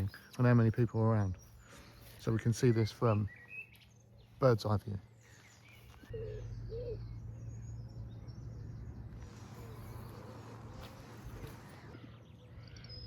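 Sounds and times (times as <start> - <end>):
birds chirping: 0.0 - 13.0
birds cooing: 5.9 - 7.8.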